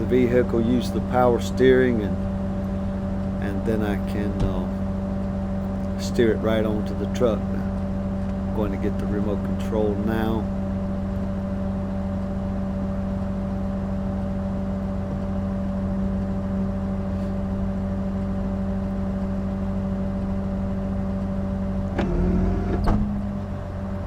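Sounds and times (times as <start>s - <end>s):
tow truck engine humming: 0.0s - 13.2s.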